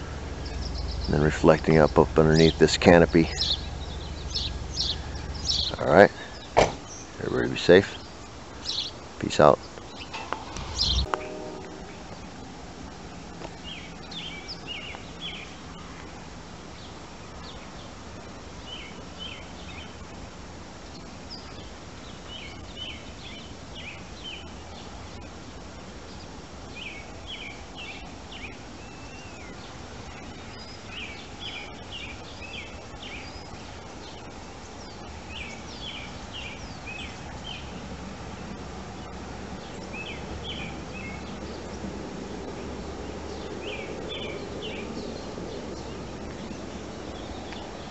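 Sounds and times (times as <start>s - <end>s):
songbird singing: 0.0s - 20.2s, 20.8s - 47.9s
outdoor background noise: 0.0s - 47.9s.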